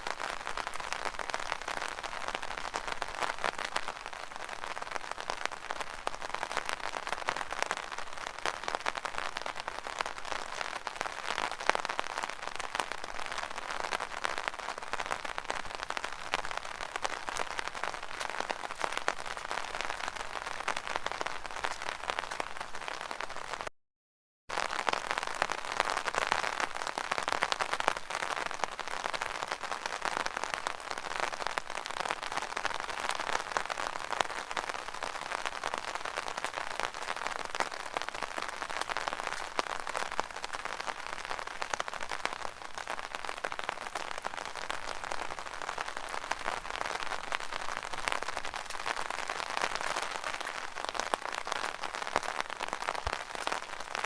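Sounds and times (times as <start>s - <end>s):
rain on an umbrella: 0.0s - 23.7s, 24.5s - 54.0s.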